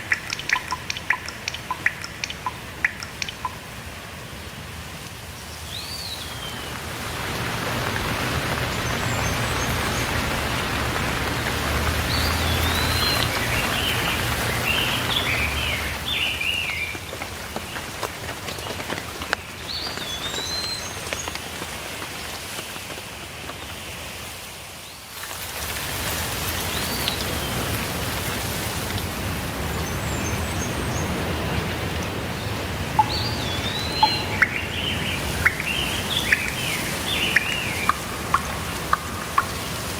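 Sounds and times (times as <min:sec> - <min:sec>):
steady rain falling: 0:00.0 - 0:39.9
bird whistling calls: 0:33.0 - 0:39.9.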